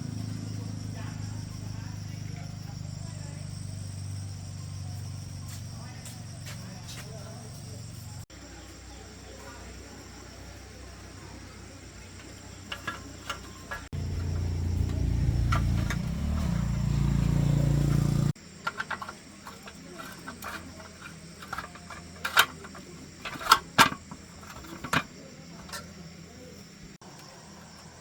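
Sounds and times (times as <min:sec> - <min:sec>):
loud low running machine: 0:13.4 - 0:18.4.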